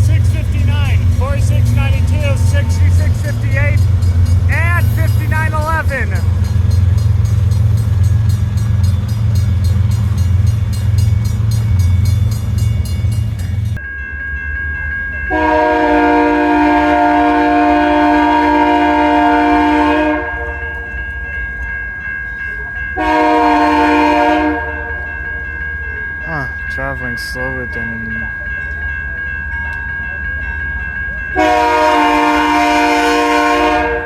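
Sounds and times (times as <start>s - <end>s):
diesel locomotives rumbling past: 0.0s - 34.0s
locomotive air horn blasts: 15.3s - 20.8s, 23.0s - 25.0s, 31.4s - 34.0s.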